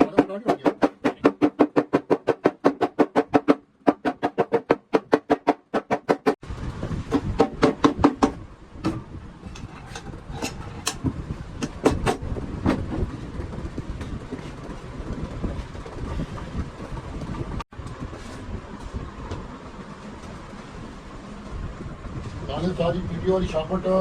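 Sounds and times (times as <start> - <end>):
sharp knocks and clicks: 0.0 - 6.4, 7.1 - 18.0.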